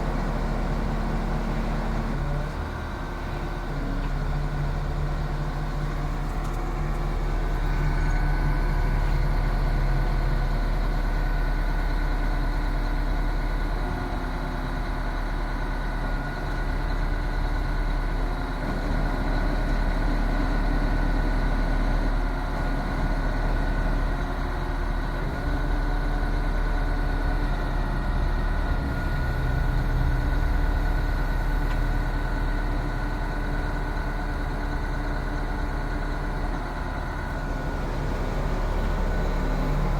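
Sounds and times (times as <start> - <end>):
truck diesel engine running: 23.1 - 39.9.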